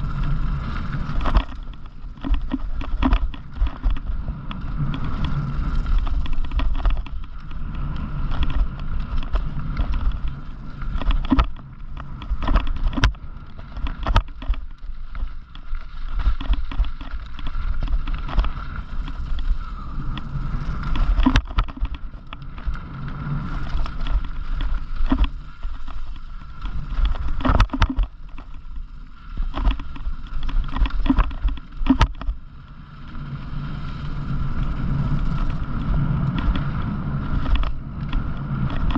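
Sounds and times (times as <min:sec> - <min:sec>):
tyres rumbling over dirt: 0:00.0 - 0:38.9
bike knocking and clattering: 0:01.0 - 0:22.8, 0:23.6 - 0:32.4, 0:36.3 - 0:38.9.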